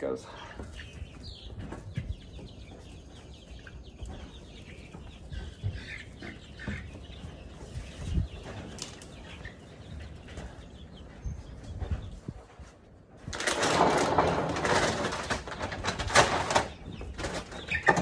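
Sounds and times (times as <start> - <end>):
chicks peeping: 0.0 - 18.0
chicks flapping wings: 0.6 - 18.0
irregular bumps: 13.2 - 18.0.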